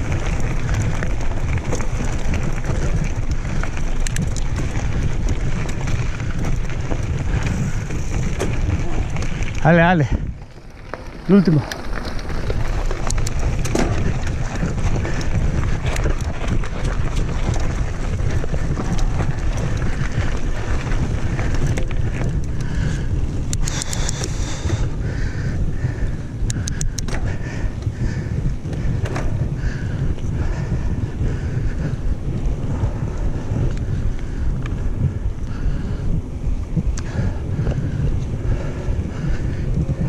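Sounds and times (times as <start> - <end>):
bike clicks and knocks: 0.0 - 30.6
wind rushing over microphone: 0.0 - 40.0.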